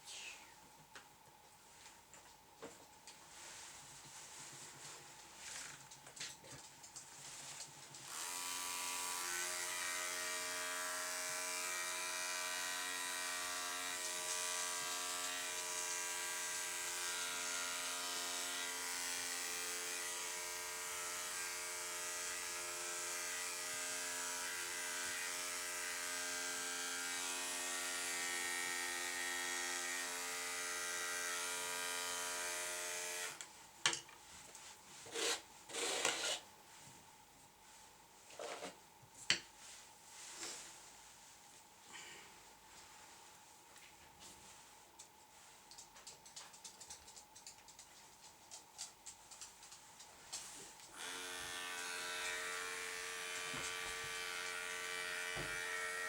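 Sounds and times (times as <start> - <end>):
electric clippers humming: 8.1 - 33.4, 50.9 - 56.0.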